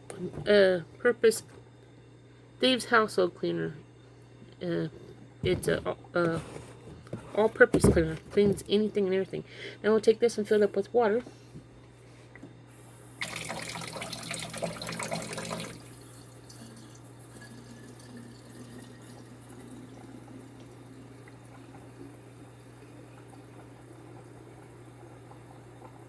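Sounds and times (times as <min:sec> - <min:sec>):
tap water filling spray bottle: 0:13.2 - 0:15.9.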